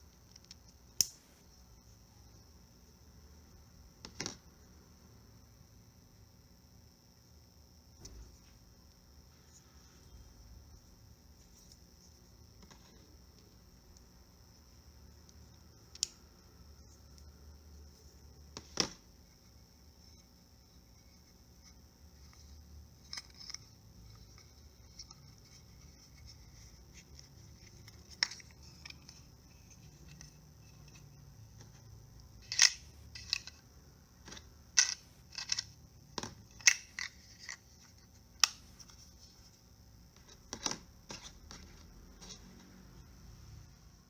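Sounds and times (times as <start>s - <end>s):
faint steady hiss: 0.0s - 44.0s
plastic toy parts clicking: 32.4s - 33.6s, 34.3s - 38.6s.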